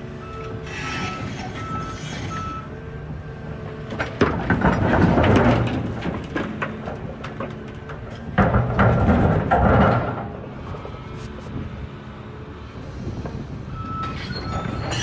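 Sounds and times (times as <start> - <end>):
heavy diesel machinery running: 0.0 - 15.0
rocks crashing into truck body: 4.2 - 7.7, 8.3 - 10.3.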